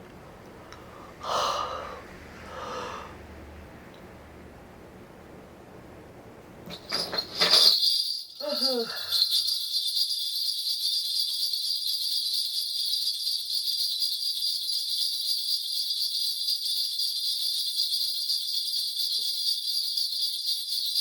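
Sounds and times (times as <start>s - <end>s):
bells jingling rapidly: 6.7s - 21.0s.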